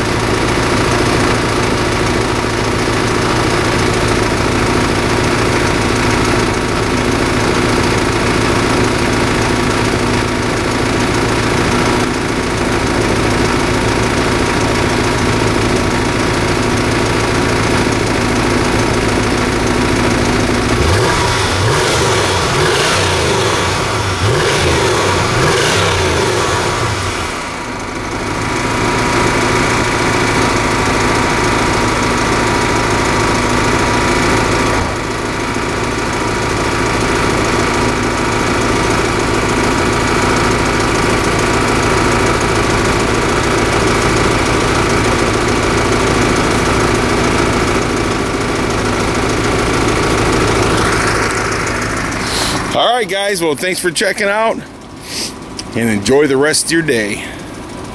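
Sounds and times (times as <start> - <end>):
car engine revving and idling: 0.0 - 57.9.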